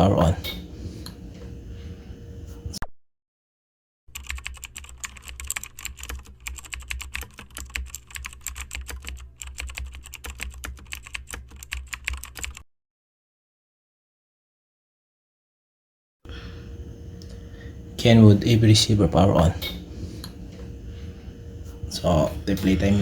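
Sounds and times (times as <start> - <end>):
steady low hum: 0.0 - 2.8, 16.3 - 23.0
rapid irregular clicking: 4.1 - 12.6.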